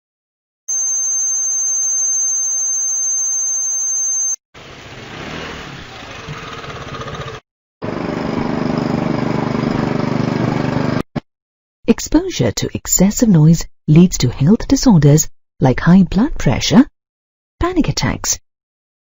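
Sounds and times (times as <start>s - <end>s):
machine engine running: 6.1s - 11.0s.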